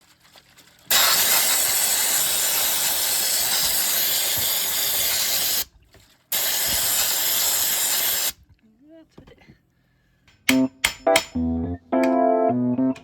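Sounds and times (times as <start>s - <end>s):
pressurised spray hissing: 6.4s - 8.4s.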